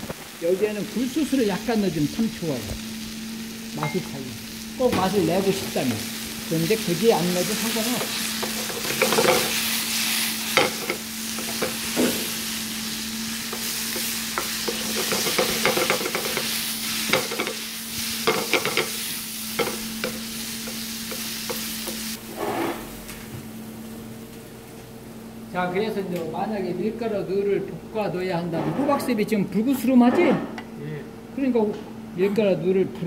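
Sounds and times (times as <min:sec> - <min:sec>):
vegetables sizzling in oil: 0:00.0 - 0:24.3.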